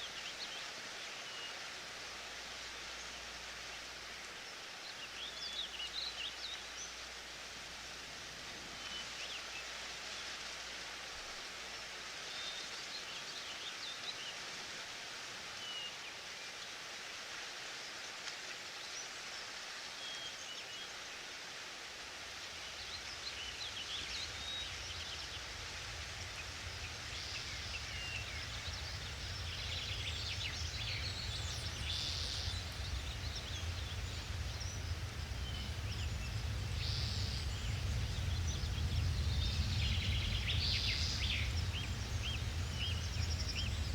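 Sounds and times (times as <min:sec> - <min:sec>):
rustling leaves: 0:00.0 - 0:43.9
low rumble: 0:22.5 - 0:43.9
bird chirps: 0:23.4 - 0:43.9.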